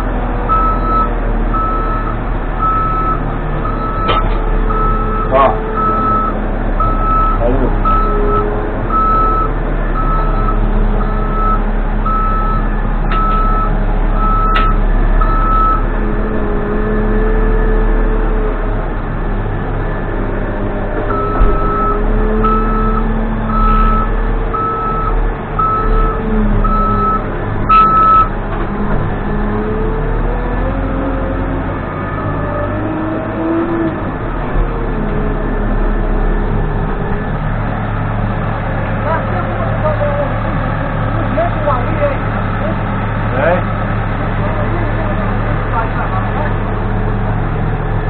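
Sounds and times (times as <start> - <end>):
diesel engine running: 0.0 - 48.0
reversing alarm beeping: 0.5 - 15.9, 21.1 - 28.3.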